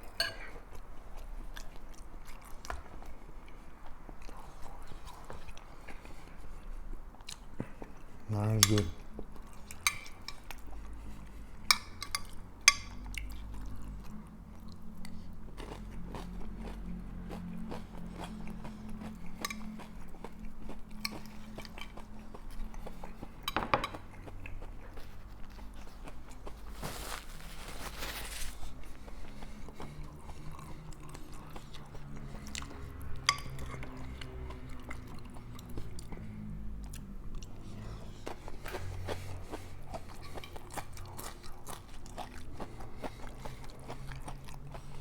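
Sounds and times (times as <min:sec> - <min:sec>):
chewing and crunching chips: 0:00.0 - 0:45.0.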